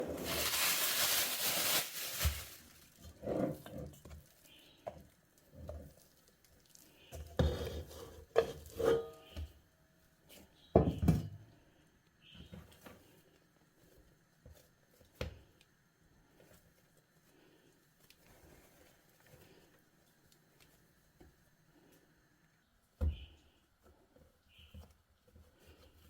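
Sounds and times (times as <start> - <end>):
rustling hiss: 0.0 - 3.0
dishes and utensils clinking: 8.4 - 9.4.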